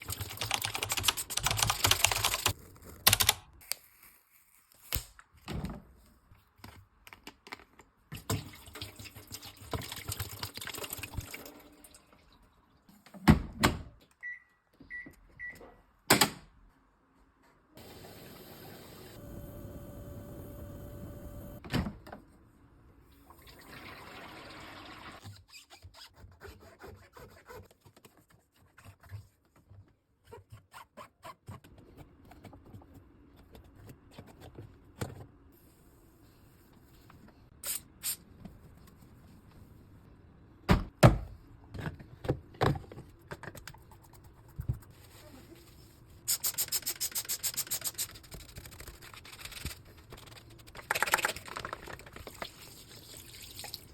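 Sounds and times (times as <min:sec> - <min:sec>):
water running: 0:51.2 - 0:53.9.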